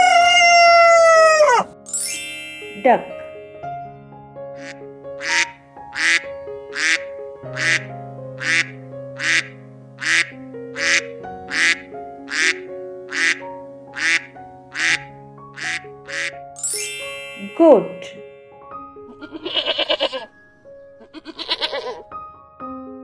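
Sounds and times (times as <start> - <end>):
background music with held notes: 0.0 - 23.0
duck quacking: 4.6 - 16.3, 19.2 - 20.3, 21.1 - 22.0.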